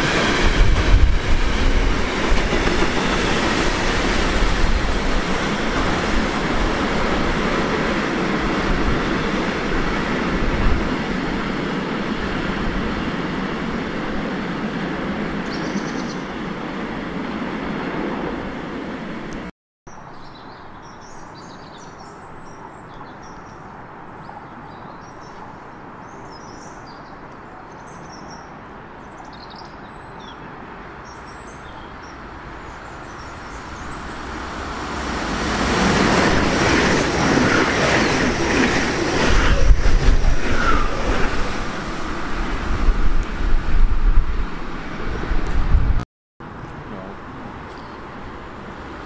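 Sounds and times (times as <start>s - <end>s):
high-speed train passing: 0.0s - 19.5s, 30.4s - 49.0s
faint rail noise: 0.0s - 49.0s.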